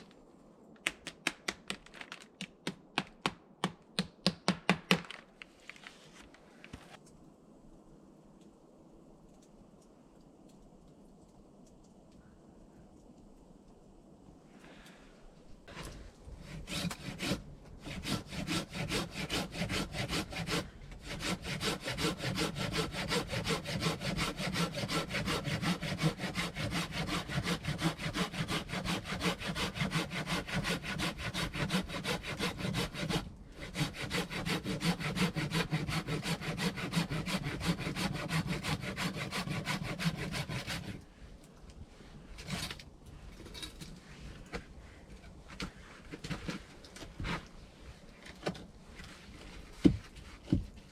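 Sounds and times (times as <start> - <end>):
hand saw cutting through log: 16.4 - 41.0.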